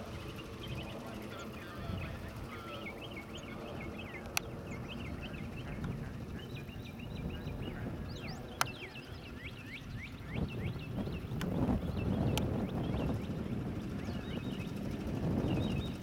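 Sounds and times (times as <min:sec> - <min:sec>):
small birds chirping: 0:00.0 - 0:16.0
steady low rumble: 0:00.0 - 0:16.0
sharp clicks: 0:04.2 - 0:04.5, 0:11.4 - 0:11.6.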